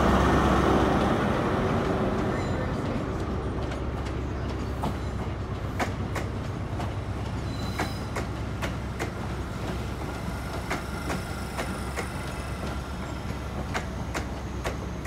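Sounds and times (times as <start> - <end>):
train wheels rumbling on rail: 0.0 - 15.0
wheels clacking over rail joints: 0.0 - 15.0.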